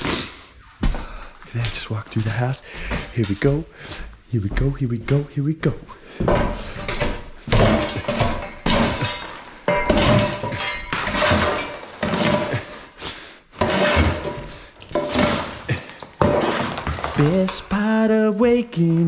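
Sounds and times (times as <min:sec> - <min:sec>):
plaster debris clattering: 0:06.8 - 0:13.0, 0:13.6 - 0:18.0
shovel scraping wooden floor: 0:06.8 - 0:17.8.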